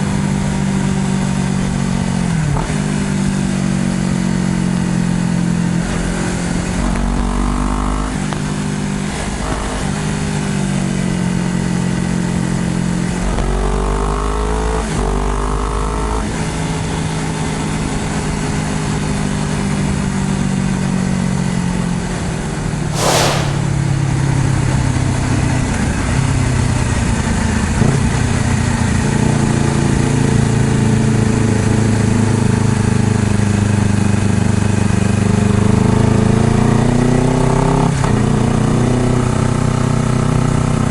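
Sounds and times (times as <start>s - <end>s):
brief hiss: 22.9s - 23.8s.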